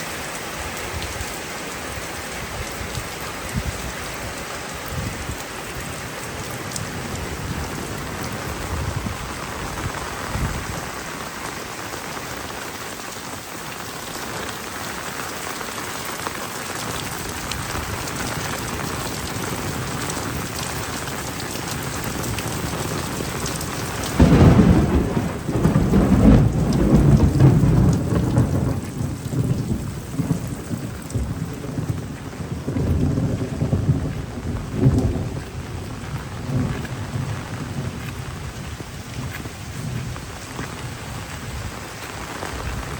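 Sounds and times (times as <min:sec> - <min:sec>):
heavy rain falling: 0:00.0 - 0:42.9
thunderclap rumbling: 0:17.4 - 0:42.9.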